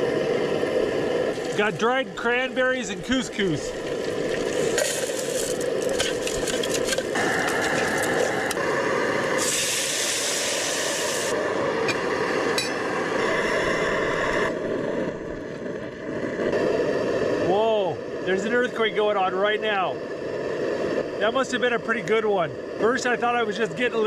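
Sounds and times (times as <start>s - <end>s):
food frying hiss: 0.0s - 24.0s
utensils clinking and scraping: 4.8s - 8.3s.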